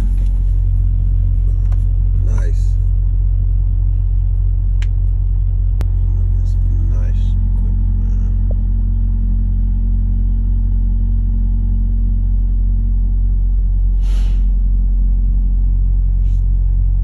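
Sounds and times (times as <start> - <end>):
truck diesel engine droning: 0.0 - 17.0
air hiss: 14.0 - 14.5.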